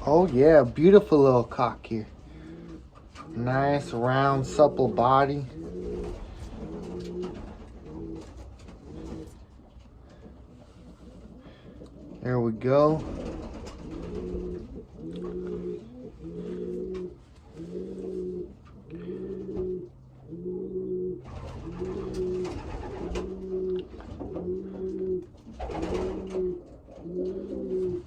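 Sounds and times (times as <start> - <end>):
pigeon cooing: 2.0 - 28.0.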